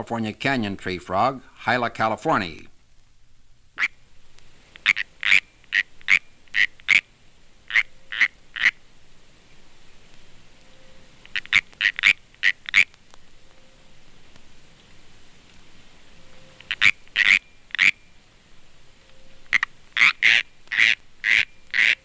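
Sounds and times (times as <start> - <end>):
tree frog chirps: 3.8 - 4.0, 4.7 - 8.8, 10.6 - 13.9, 16.1 - 18.3, 18.9 - 22.0.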